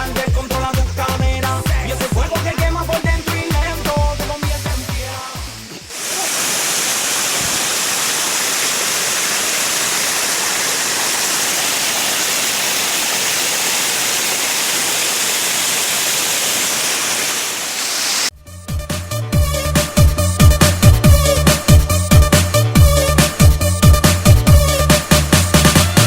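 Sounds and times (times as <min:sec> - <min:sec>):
waterfall rushing: 0:00.0 - 0:18.3.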